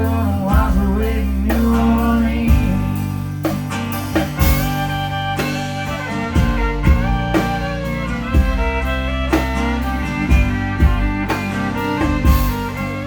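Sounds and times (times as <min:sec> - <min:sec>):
drum kit beat: 0:00.0 - 0:13.0
guitar: 0:00.0 - 0:13.0
fiddle: 0:04.1 - 0:13.0.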